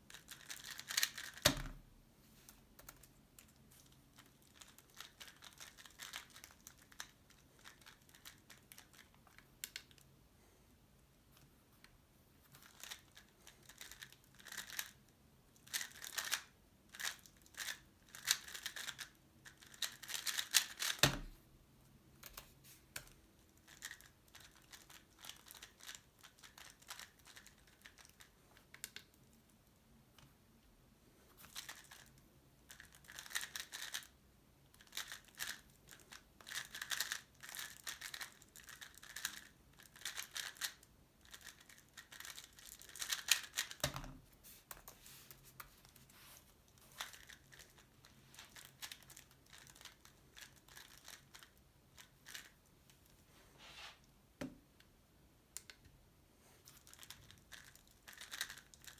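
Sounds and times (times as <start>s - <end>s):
puzzle cube clicking and rattling: 0.1s - 1.6s, 2.8s - 9.9s, 12.5s - 15.0s, 15.6s - 21.1s, 23.1s - 29.1s, 31.4s - 34.2s, 34.8s - 44.0s, 46.6s - 52.6s, 56.8s - 58.9s.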